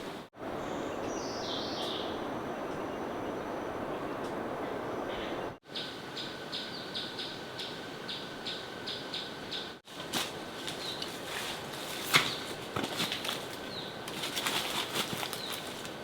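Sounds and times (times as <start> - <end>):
bird chirping: 0.6 - 9.8.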